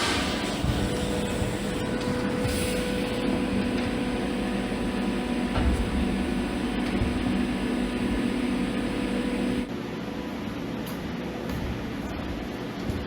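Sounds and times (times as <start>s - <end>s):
welding arc buzzing and hissing: 0.0s - 9.7s.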